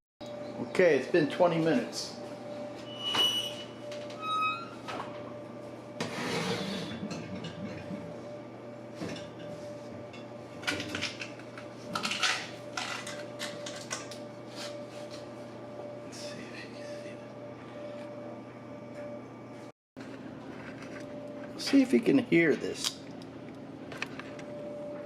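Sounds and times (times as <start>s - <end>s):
steady hum: 0.2s - 25.0s
pots and pans clinking: 6.7s - 8.0s.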